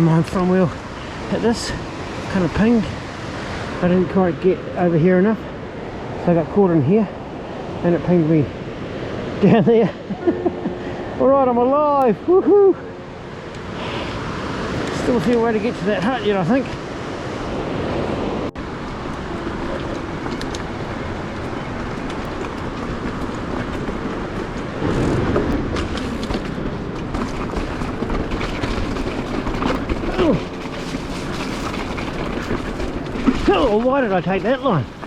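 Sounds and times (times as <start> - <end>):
mountain bike rattling over rocks: 18.6 - 35.0.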